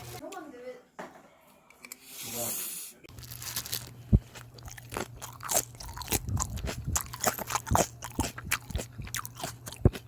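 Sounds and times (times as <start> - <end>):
person chewing crunchy cabbage: 3.1 - 10.0.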